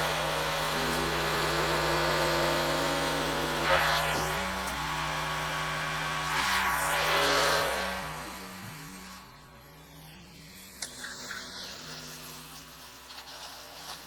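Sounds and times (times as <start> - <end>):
pressure washer engine hum: 0.0 - 9.9.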